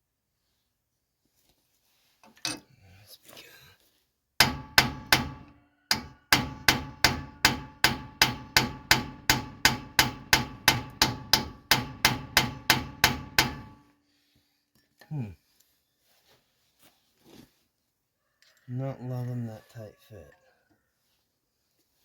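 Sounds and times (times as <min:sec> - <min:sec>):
hammer striking metal: 0:04.4 - 0:13.9.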